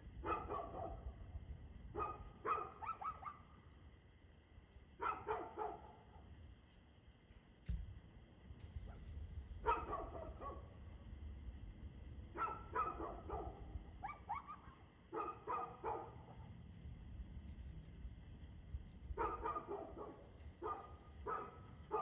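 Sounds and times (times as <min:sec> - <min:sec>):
steady low rumble: 0:00.0 - 0:22.0
dog barking: 0:00.2 - 0:01.2, 0:01.9 - 0:03.5, 0:05.0 - 0:06.2, 0:09.6 - 0:10.8, 0:12.3 - 0:16.5, 0:19.2 - 0:22.0.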